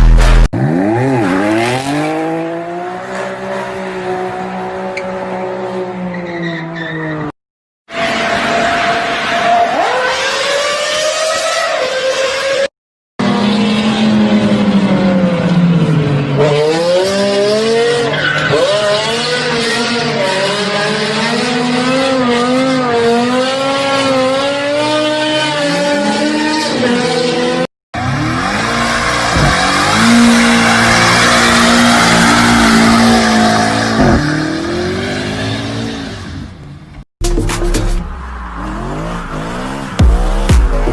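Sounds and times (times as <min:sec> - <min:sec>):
tyres skidding and squealing: 0:02.6 - 0:37.0, 0:37.7 - 0:40.9
car engine revving: 0:37.7 - 0:40.9.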